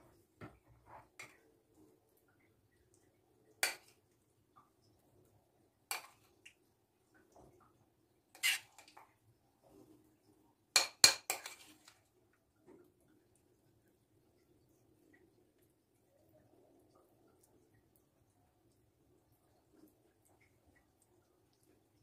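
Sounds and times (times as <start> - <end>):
dishes and cutlery clinking: 10.8 - 12.0.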